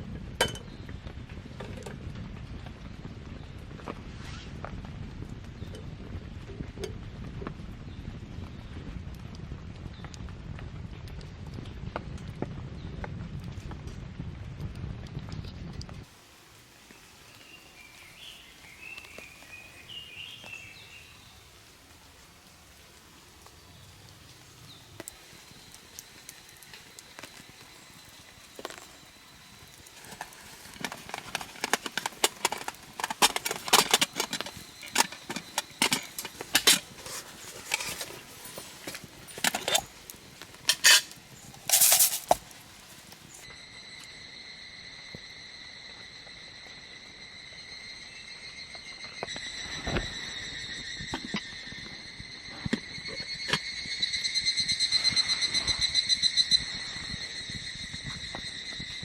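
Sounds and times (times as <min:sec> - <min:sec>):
cookware clinking and knocking: 0:00.4 - 0:00.7, 0:30.0 - 0:40.0, 0:40.6 - 0:42.5
insects trilling: 0:16.1 - 0:59.0.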